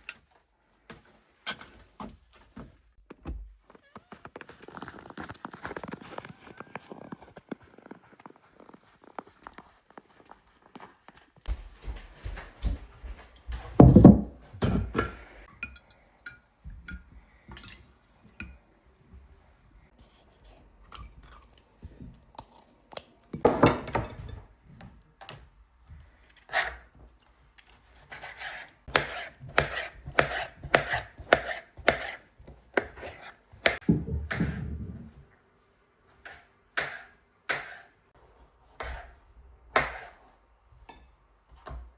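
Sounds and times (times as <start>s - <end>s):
knife chopping on cutting board: 28.1s - 34.6s, 36.2s - 37.9s, 39.7s - 40.2s.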